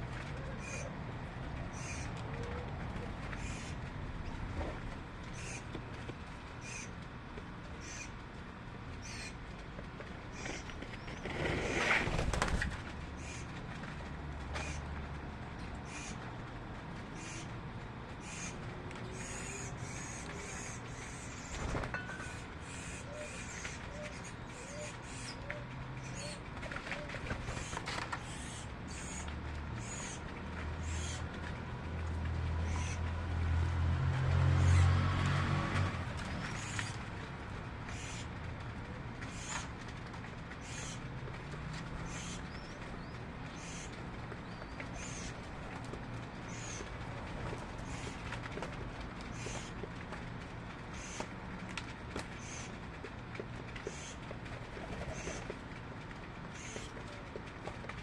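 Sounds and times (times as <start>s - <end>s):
small birds chirping: 1.7s - 2.6s, 9.0s - 9.4s, 17.2s - 17.5s, 18.2s - 21.6s, 22.2s - 26.5s, 27.5s - 30.2s, 30.8s - 31.3s, 40.6s - 41.0s, 42.0s - 45.4s, 46.4s - 47.0s, 47.8s - 48.2s, 49.3s - 49.8s, 52.3s - 52.8s, 53.8s - 54.3s, 56.5s - 57.0s
rustling flutter: 10.4s - 14.0s.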